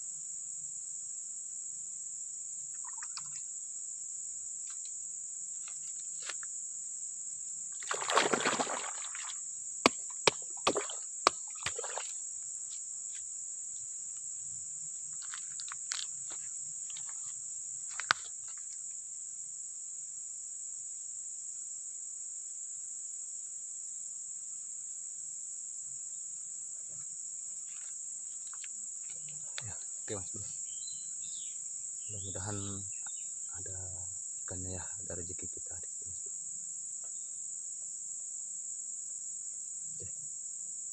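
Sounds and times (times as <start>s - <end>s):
crickets and insects chirring: 0.0s - 40.9s
splash in water: 7.8s - 9.4s, 10.6s - 12.2s.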